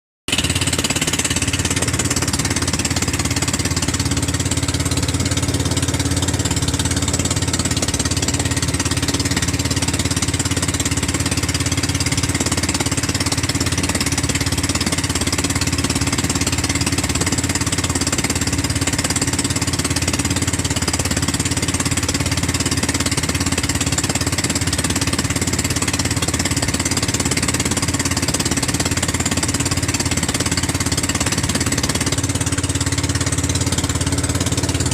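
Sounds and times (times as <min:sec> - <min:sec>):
gasoline engine running: 0:00.3 - 0:34.9.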